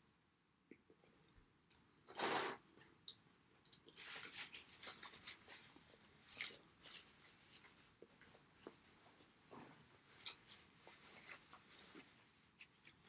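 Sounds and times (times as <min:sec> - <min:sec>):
chewing with mouth clicks: 0:03.0 - 0:05.2.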